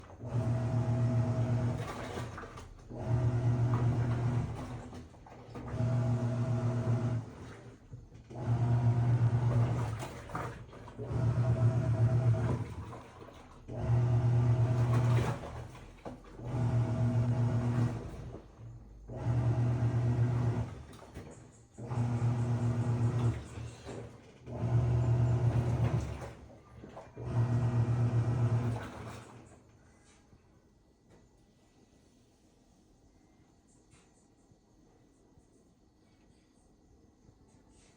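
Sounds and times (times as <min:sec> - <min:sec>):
washing machine agitating: 0:00.0 - 0:30.0.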